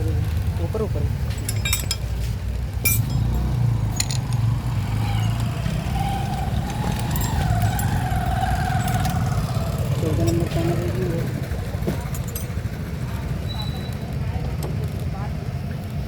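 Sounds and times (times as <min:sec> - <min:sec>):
low rumble of road traffic: 0:00.0 - 0:16.0
sharp metallic clinks: 0:01.2 - 0:02.2, 0:02.8 - 0:05.2, 0:06.3 - 0:09.6.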